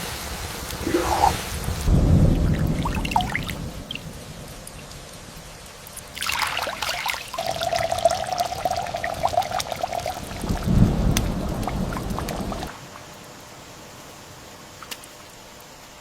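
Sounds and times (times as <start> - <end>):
water pouring and splashing: 0.7 - 4.9, 5.8 - 13.2.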